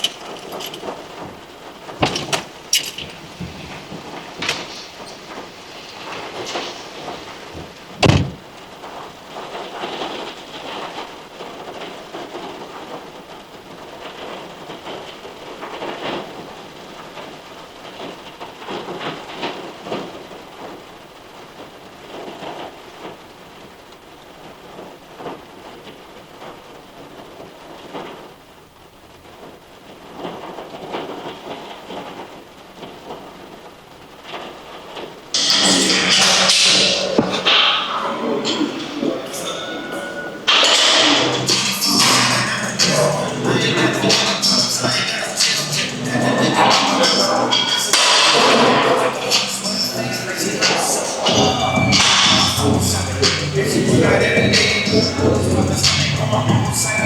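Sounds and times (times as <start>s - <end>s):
rain falling: 0.0s - 57.0s
loud sharp knock: 8.0s - 8.4s
loud music: 40.5s - 57.0s.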